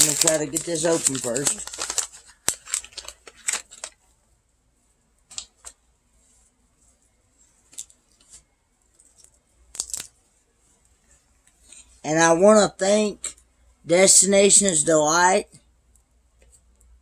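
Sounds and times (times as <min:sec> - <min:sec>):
wrapper crackling: 0:00.0 - 0:04.0, 0:09.7 - 0:10.2.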